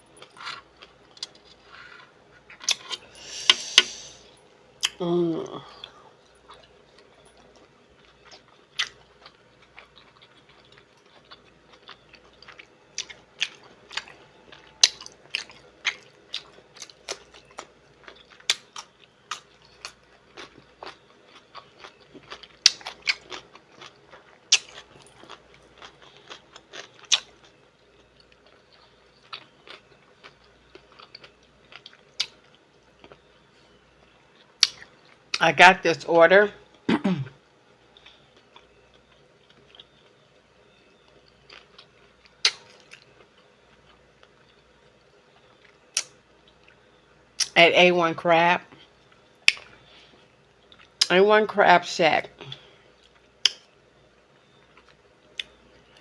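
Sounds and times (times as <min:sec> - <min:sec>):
person chewing: 0:00.2 - 0:33.2, 0:38.0 - 0:40.1, 0:41.1 - 0:44.6.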